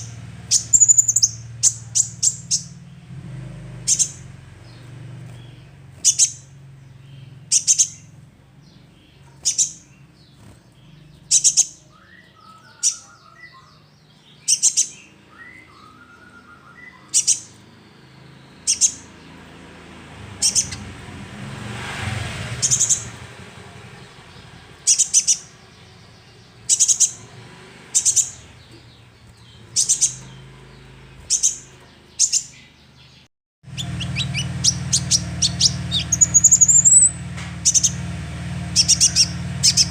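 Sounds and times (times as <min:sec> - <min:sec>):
bird giving high chirping calls: 0:00.0 - 0:19.7, 0:20.3 - 0:21.0, 0:22.1 - 0:38.0, 0:38.6 - 0:39.9.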